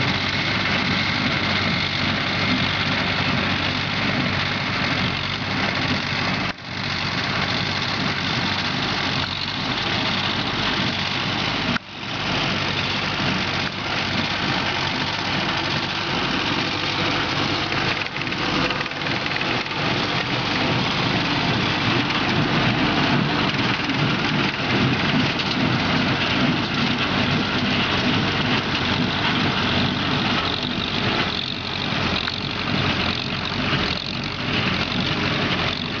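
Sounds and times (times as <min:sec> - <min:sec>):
baler mechanical clatter: 0:00.0 - 0:36.0
tractor engine running under load: 0:00.0 - 0:36.0.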